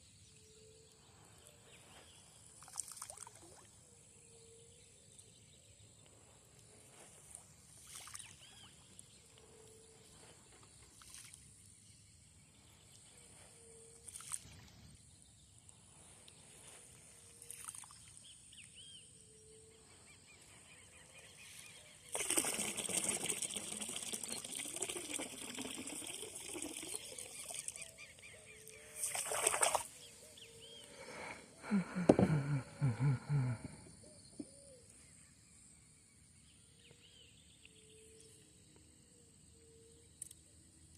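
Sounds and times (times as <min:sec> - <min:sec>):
water splashing or pouring: 0:02.6 - 0:03.6, 0:22.1 - 0:27.9, 0:29.0 - 0:29.9.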